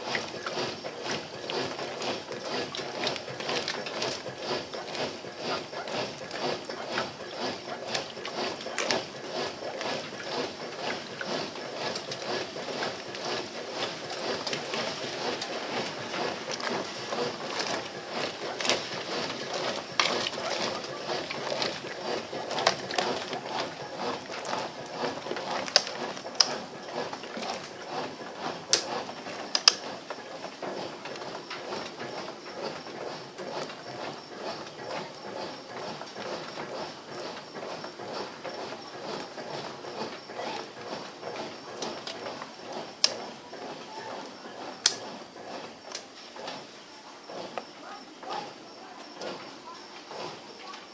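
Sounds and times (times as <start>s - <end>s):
water sloshing: 0.0s - 31.0s
washing machine agitator churning: 0.0s - 50.9s
sharp clicks: 44.8s - 45.1s.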